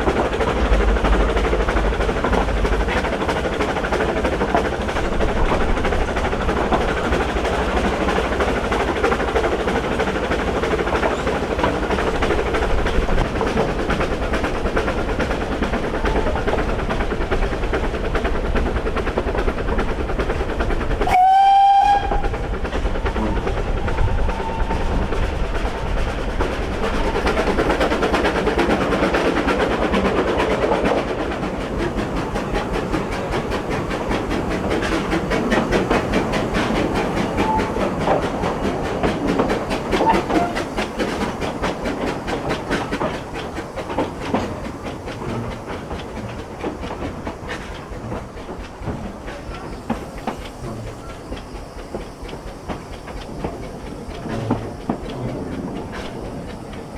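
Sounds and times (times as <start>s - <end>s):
steam train running: 0.0s - 56.9s
train whistle blast: 21.0s - 22.4s.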